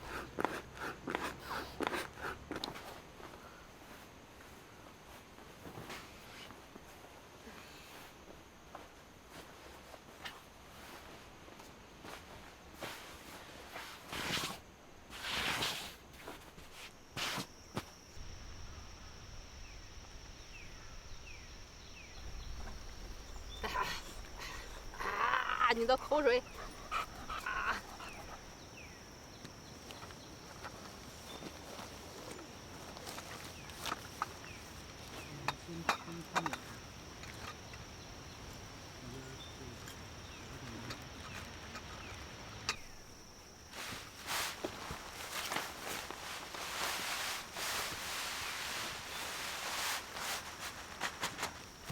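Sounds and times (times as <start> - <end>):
high insect drone: 0.0 - 51.9
rustle: 0.0 - 51.9
faint chirps: 17.2 - 50.9.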